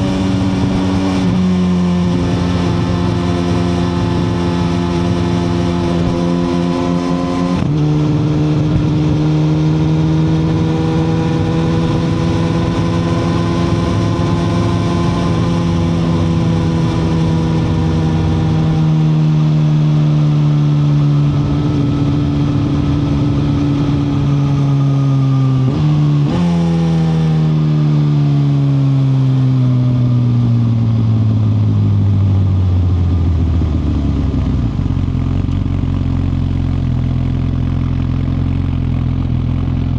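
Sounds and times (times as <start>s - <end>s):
wind noise: 0.0s - 19.1s, 21.1s - 25.0s
motorcycle engine running: 0.0s - 39.9s.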